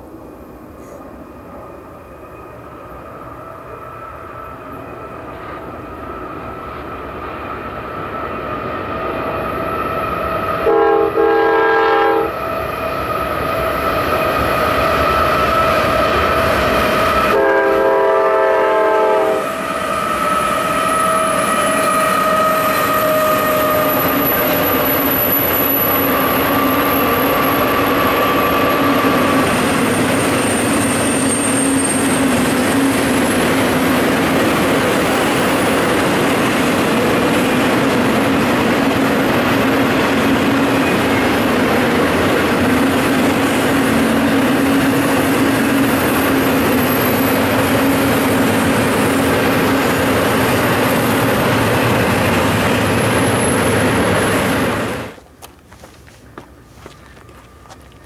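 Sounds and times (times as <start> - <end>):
locomotive air horn blasts: 10.6 - 12.4, 17.2 - 24.0.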